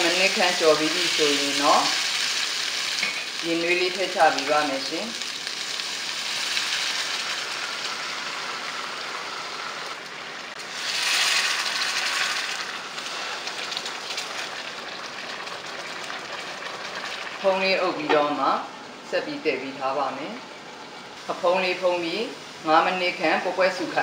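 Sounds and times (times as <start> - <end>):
food sizzling in hot oil: 0.0 - 18.8.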